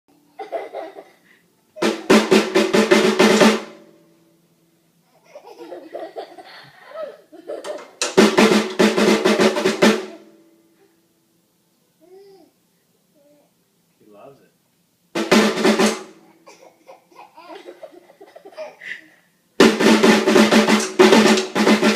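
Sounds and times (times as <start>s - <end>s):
rapid drum-like beating: 1.8s - 3.8s, 8.1s - 10.2s, 15.2s - 16.2s, 19.6s - 21.9s.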